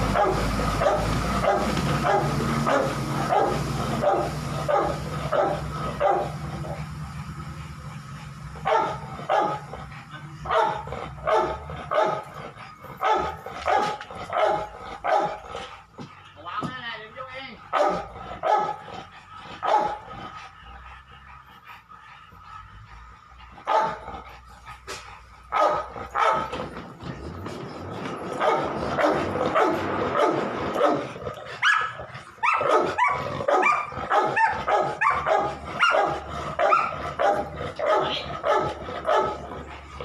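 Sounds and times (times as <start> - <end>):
dogs barking and whining: 0.0 - 40.0.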